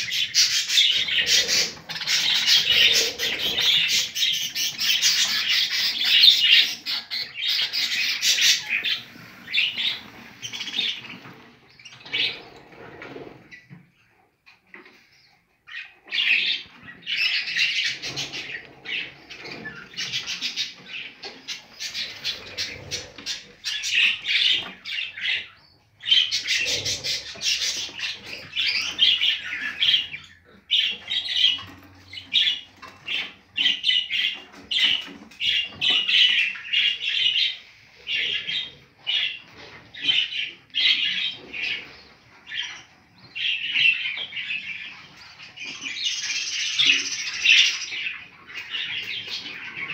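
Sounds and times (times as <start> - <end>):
budgerigars chirping: 0.0 - 13.2, 15.7 - 49.9.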